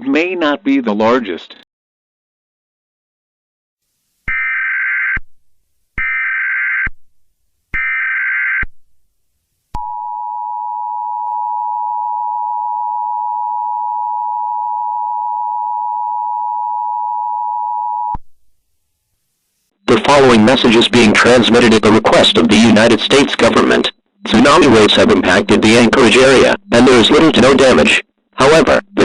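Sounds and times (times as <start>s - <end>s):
digital data bursts: 20.1s - 29.0s
steady two-tone attention signal: 23.5s - 29.0s.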